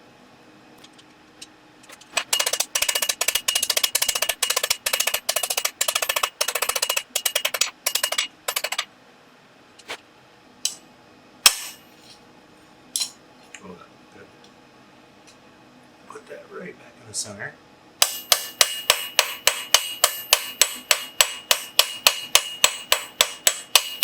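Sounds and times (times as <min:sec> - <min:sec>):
hammer striking steel on anvil: 0:02.0 - 0:08.9, 0:11.5 - 0:12.0, 0:18.0 - 0:24.0.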